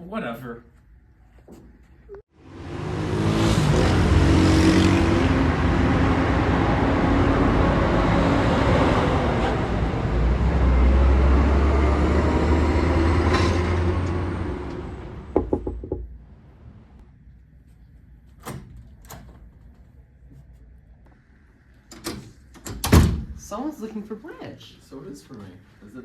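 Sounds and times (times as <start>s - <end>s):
car driving past: 2.4s - 15.4s.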